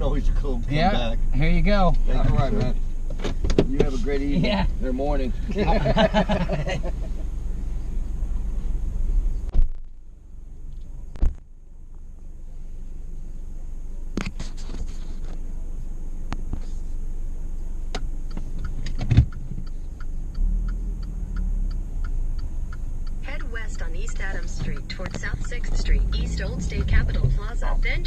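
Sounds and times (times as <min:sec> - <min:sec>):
turn signal ticking: 0:00.0 - 0:11.2, 0:15.4 - 0:28.0
car engine idling: 0:00.0 - 0:28.0
car door shutting thump: 0:03.1 - 0:04.0, 0:18.8 - 0:19.3.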